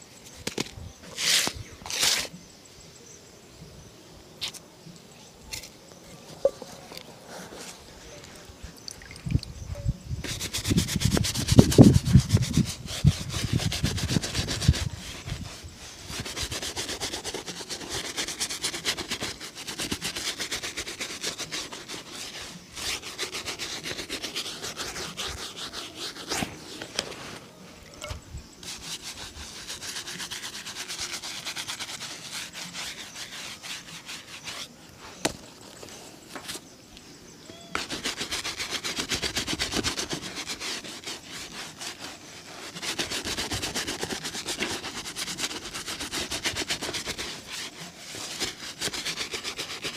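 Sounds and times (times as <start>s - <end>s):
scrubbing strokes over leather: 1.1s - 2.4s, 10.2s - 27.8s, 28.5s - 36.7s, 37.7s - 49.9s.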